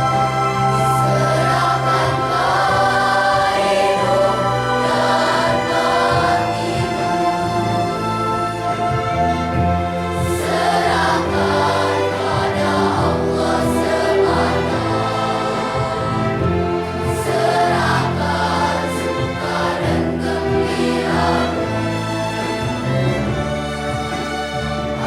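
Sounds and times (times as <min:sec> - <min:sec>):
flute: 0:00.0 - 0:14.1
children's choir singing: 0:00.0 - 0:25.0
piano: 0:00.0 - 0:25.0
string orchestra: 0:00.0 - 0:25.0.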